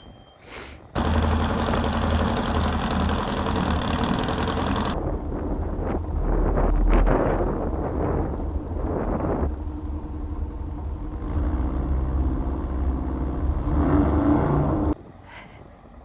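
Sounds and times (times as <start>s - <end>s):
car engine running hard: 1.0s - 7.1s, 7.7s - 15.0s.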